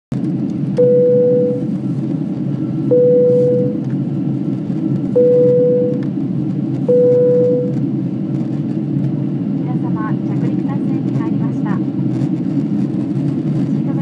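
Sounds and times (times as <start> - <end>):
airliner cabin engine rumble: 0.1 - 14.0.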